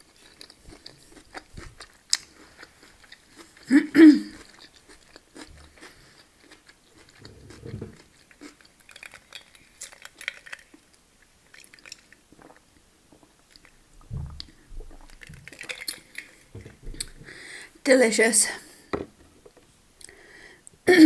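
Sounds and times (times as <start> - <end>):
person chewing food: 0.0 - 17.2
crunchy crackles: 4.4 - 12.6
soft mouth sounds: 7.0 - 8.6.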